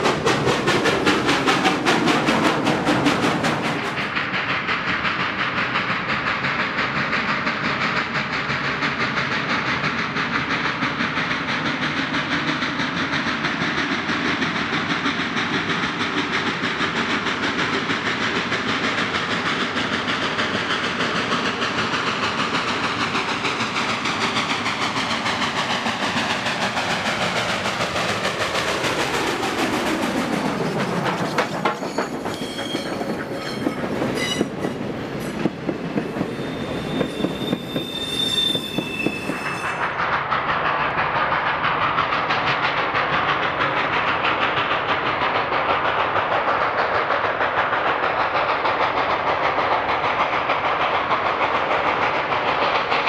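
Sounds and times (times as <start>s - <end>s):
train wheels rumbling on rails: 0.0s - 53.0s
short high wheel squeals: 31.2s - 34.8s, 36.2s - 40.0s.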